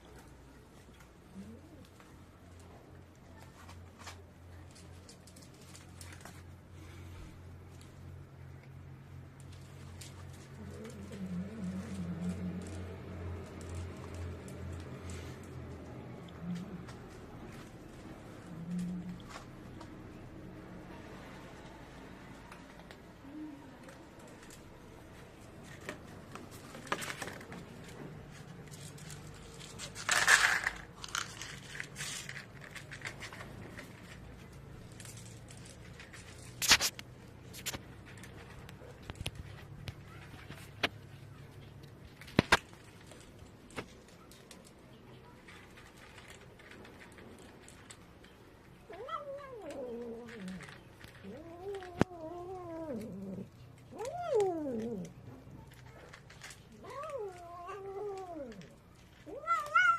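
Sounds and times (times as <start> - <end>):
rustling: 0.0 - 59.9
cat meowing: 48.9 - 50.2, 59.2 - 59.9.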